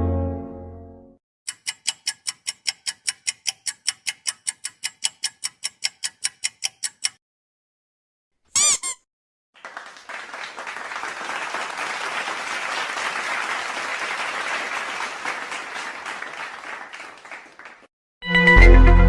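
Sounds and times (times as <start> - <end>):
crowd applauding: 9.6 - 17.9.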